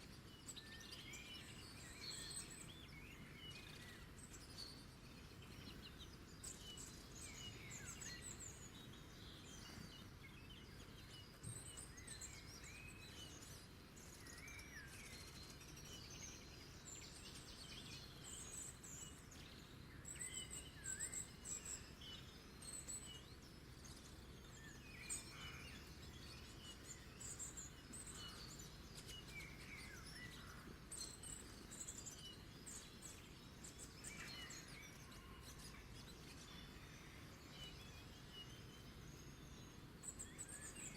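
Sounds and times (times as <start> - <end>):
low background hiss: 0.0 - 40.9
small birds chirping: 0.0 - 40.9.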